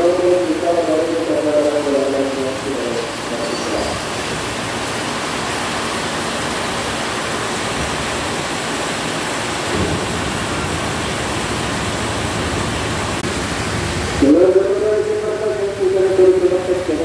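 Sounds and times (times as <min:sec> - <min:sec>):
heavy rain pouring: 0:00.0 - 0:17.0
train rumble coming to a stop: 0:03.1 - 0:04.5.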